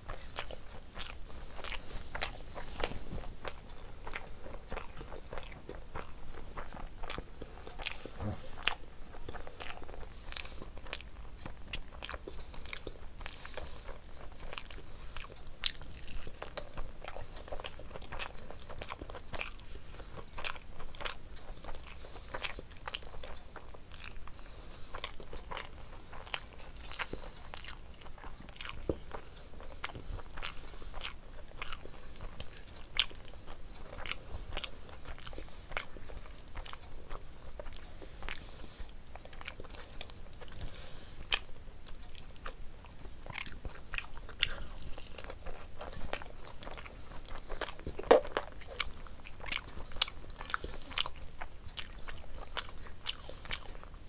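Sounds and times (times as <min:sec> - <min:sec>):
wet chewing with mouth clicks: 0:00.0 - 0:54.0.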